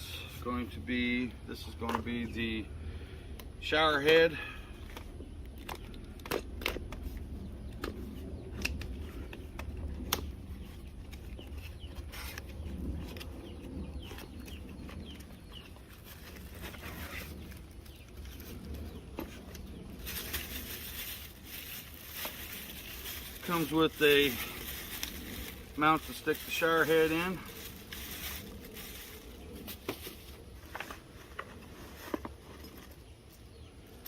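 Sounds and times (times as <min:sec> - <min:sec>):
packaging rustling: 0:19.4 - 0:31.0.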